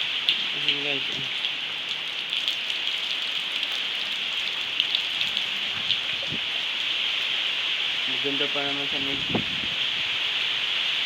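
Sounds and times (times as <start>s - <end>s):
steady rain falling: 0.0s - 11.0s
raindrops tapping: 0.2s - 6.7s.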